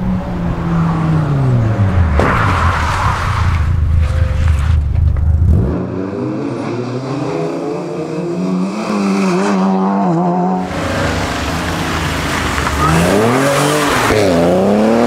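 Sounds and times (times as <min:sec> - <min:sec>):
engine rumbling low: 0:00.0 - 0:06.0
rally car engine at high revs: 0:05.5 - 0:15.0.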